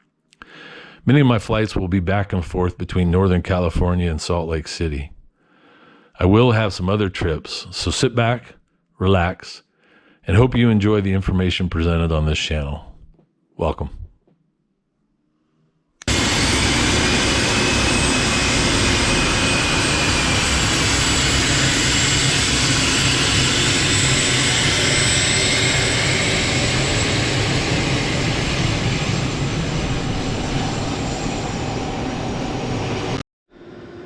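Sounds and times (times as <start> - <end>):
jet engine roaring with whine: 16.1 - 34.0.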